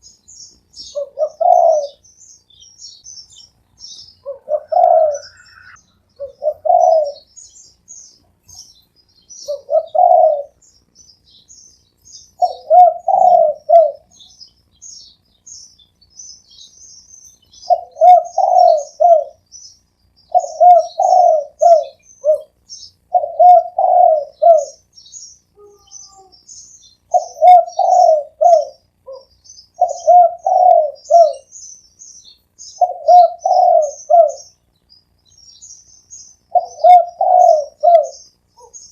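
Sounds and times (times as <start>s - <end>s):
small birds chirping: 0.0s - 38.9s
dove cooing: 0.8s - 2.1s, 4.2s - 7.3s, 9.4s - 10.6s, 12.4s - 14.3s, 17.6s - 19.4s, 20.3s - 24.8s, 27.1s - 31.6s, 32.7s - 34.6s, 36.5s - 38.9s.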